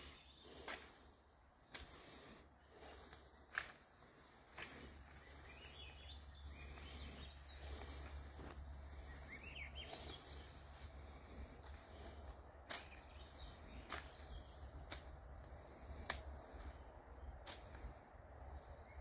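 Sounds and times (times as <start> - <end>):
birds chirping: 0.0 - 19.0
steady low rumble: 0.0 - 19.0
sharp snaps: 0.5 - 1.0, 1.6 - 2.3, 12.6 - 15.2, 15.8 - 16.5.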